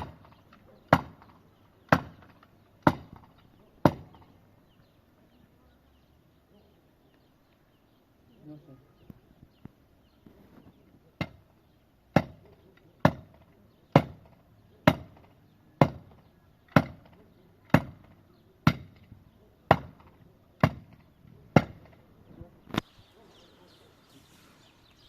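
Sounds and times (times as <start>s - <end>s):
hand tool striking wood: 0.0s - 4.3s, 12.1s - 19.1s, 19.7s - 22.0s.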